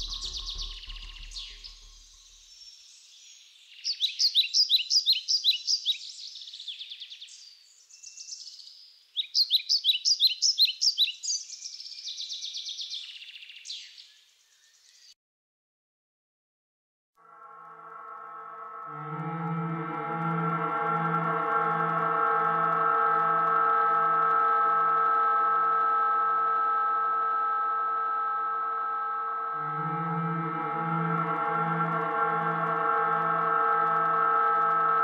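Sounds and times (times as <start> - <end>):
rapid high bird chirps: 0.0 - 15.1.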